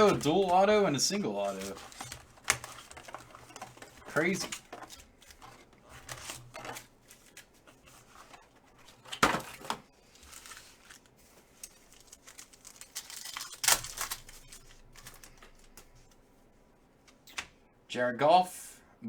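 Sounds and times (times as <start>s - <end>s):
foil packs tearing: 0.0s - 7.4s, 10.1s - 15.4s
foil crinkling: 0.0s - 8.4s, 9.6s - 15.9s.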